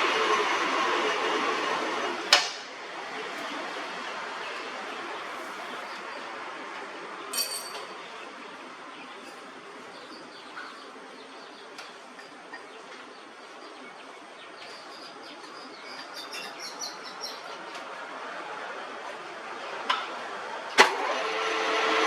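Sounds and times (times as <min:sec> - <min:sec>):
low background noise: 0:00.0 - 0:21.8
birds chirping: 0:04.3 - 0:17.9.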